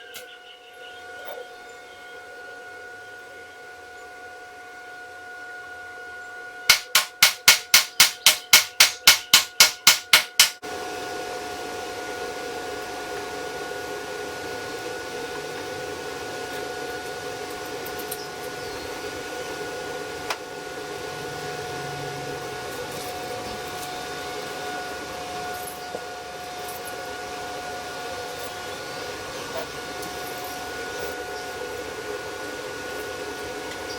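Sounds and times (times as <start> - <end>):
hammer striking metal: 6.7 - 10.6.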